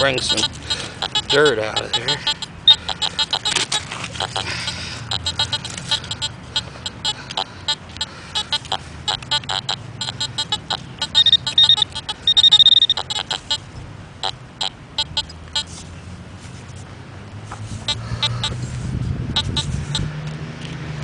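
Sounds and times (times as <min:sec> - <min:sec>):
metal detector beeps: 0:00.0 - 0:13.6, 0:14.6 - 0:15.7.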